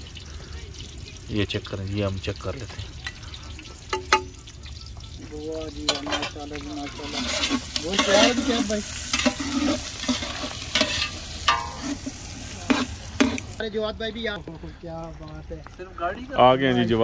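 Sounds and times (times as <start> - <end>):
onions sizzling in oil: 0.0 - 13.6
metal ladle scraping pot: 5.7 - 13.6.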